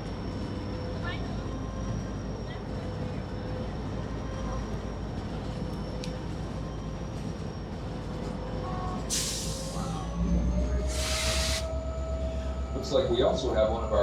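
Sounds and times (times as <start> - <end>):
train rumbling on rails: 0.0 - 14.0
loud burst of hiss: 9.1 - 9.8, 10.9 - 11.7.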